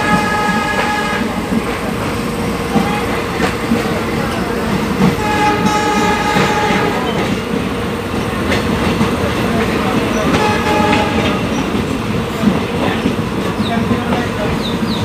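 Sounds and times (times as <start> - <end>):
train horn blast: 0.0 - 1.4, 5.2 - 7.4, 10.3 - 11.5
train wheels clacking over rail joints: 0.0 - 15.0.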